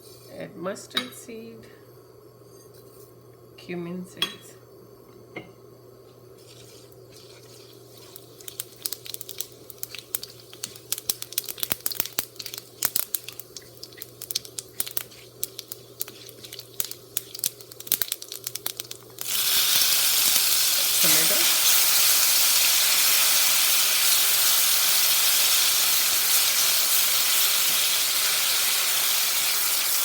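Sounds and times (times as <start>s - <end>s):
seeds popping in hot oil: 6.4s - 30.0s.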